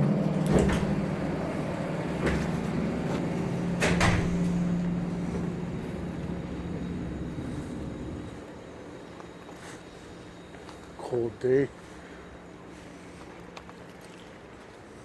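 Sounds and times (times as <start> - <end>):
low hum and rumble: 0.0 - 10.9.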